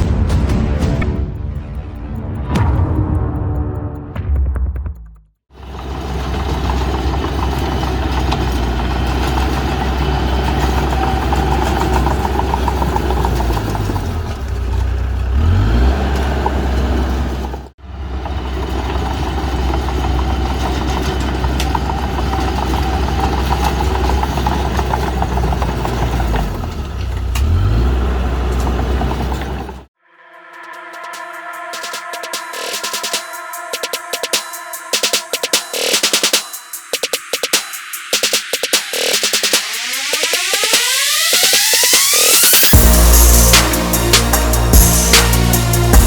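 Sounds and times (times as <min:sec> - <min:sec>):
heavy diesel engine running under load: 0:05.6 - 0:29.9, 0:40.3 - 0:46.0.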